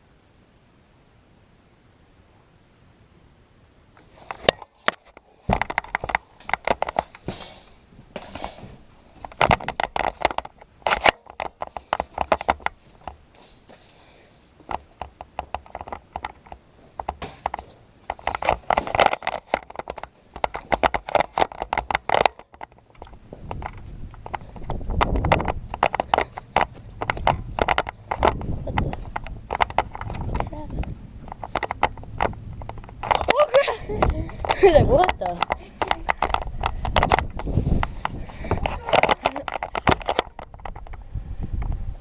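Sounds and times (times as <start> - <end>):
rustle and clatter of handling: 4.0 - 41.8
hurried footsteps and scuffing: 23.2 - 30.9.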